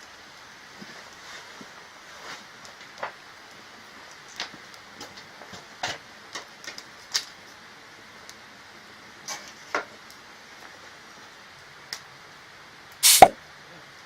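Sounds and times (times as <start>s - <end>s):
firewood crackling: 0.2s - 12.1s
firewood sharp pops: 13.0s - 13.4s.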